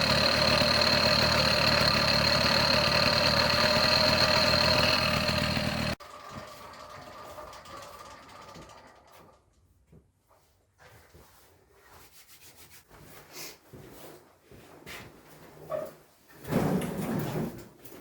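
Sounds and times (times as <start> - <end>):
small two-stroke engine running: 0.0 - 9.2.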